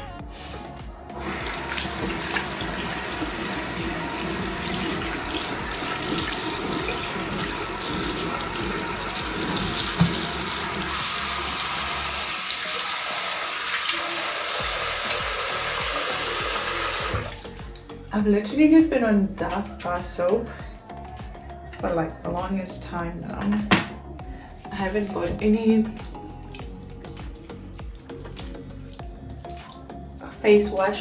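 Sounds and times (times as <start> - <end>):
tap running water into sink: 1.2 - 17.9, 25.2 - 29.8
knock: 10.0 - 10.3.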